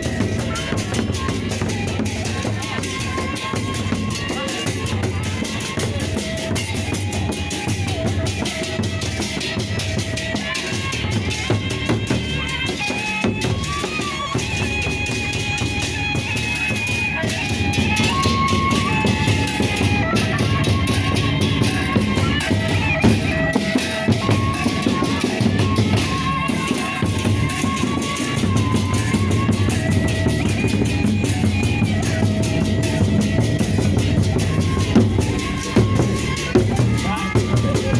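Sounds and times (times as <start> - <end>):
fast drum strikes: 0.0 - 37.9
clashing cymbals: 11.7 - 37.9
sustained gamelan melody: 12.9 - 37.9.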